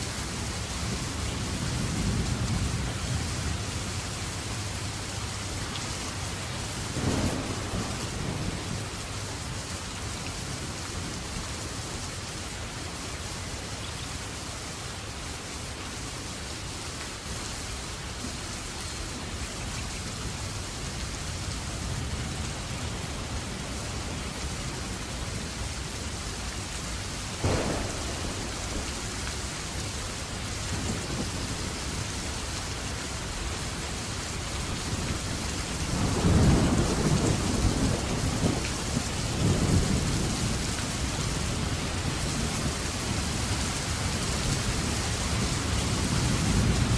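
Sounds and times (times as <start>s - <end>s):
steady rain falling: 0.0s - 46.9s
thunder rumbling: 6.9s - 9.1s, 27.4s - 32.4s, 34.9s - 43.2s.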